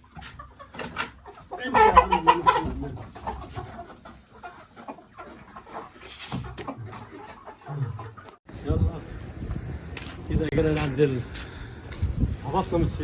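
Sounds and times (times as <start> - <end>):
chicken squawking: 0.0 - 8.4
chickens clucking: 0.0 - 13.0.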